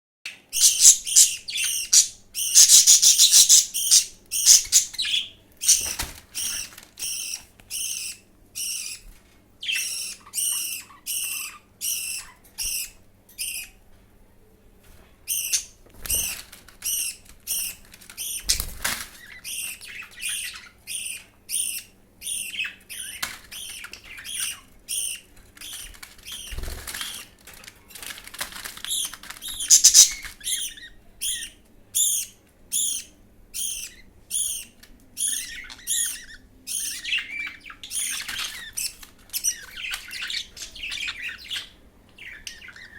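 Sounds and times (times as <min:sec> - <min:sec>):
bird chicks begging calls: 0:00.4 - 0:13.8, 0:15.3 - 0:27.4, 0:28.9 - 0:42.9.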